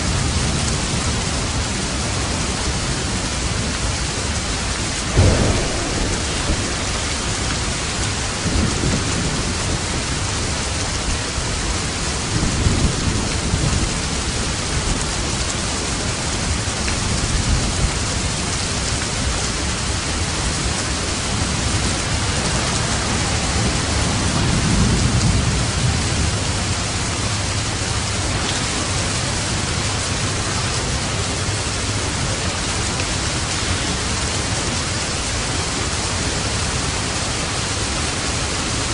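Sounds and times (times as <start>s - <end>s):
steady rain hissing: 0.0s - 38.9s
distant thunder rumbling: 5.0s - 11.7s.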